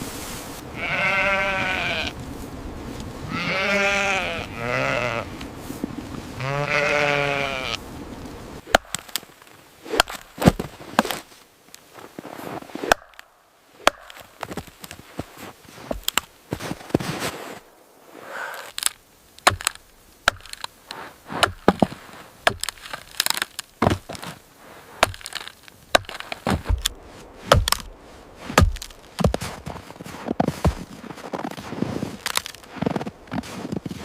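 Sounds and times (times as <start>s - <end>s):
sharp cracks and knocks: 8.7s - 11.3s, 12.8s - 15.0s, 18.7s - 24.4s, 25.0s - 29.8s, 32.2s - 32.7s.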